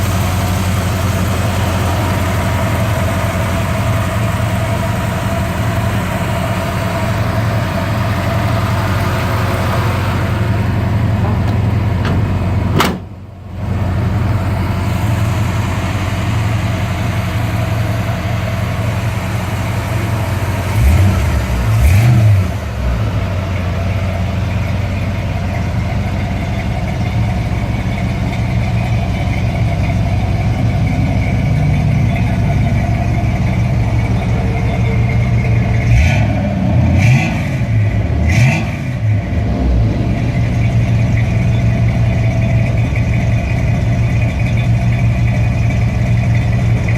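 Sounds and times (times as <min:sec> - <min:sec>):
car engine idling and revving: 0:00.0 - 0:46.9.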